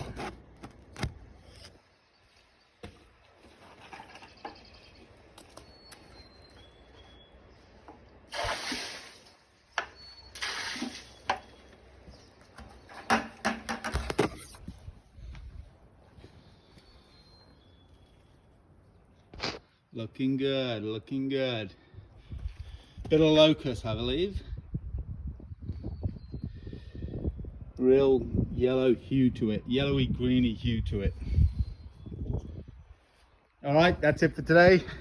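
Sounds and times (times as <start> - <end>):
water spray hissing: 8.3 - 9.4, 10.3 - 11.3
sharp knocks and clatter: 12.9 - 14.3.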